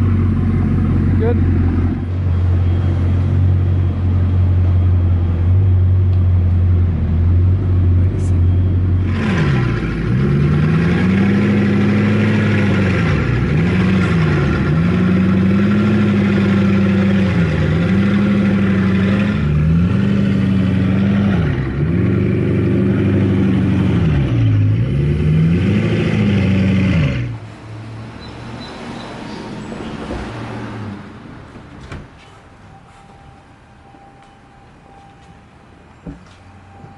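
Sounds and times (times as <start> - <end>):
car engine revving loud: 9.0 - 27.4.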